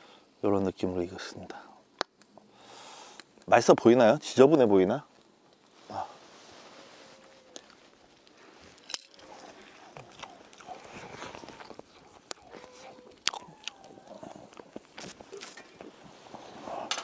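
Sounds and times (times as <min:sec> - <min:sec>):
man chewing food: 0:07.5 - 0:16.6.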